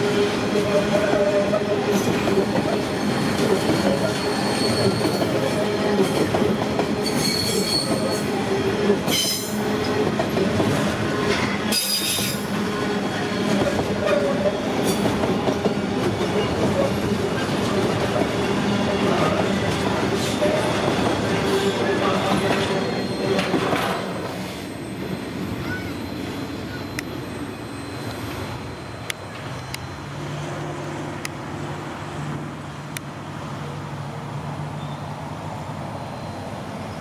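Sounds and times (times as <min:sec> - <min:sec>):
freight train wheels rumbling: 0:00.0 - 0:37.0
high-pitched wheel squeals: 0:01.2 - 0:05.5, 0:07.0 - 0:08.3, 0:11.7 - 0:15.0, 0:21.4 - 0:23.8, 0:24.4 - 0:30.2, 0:36.0 - 0:37.0.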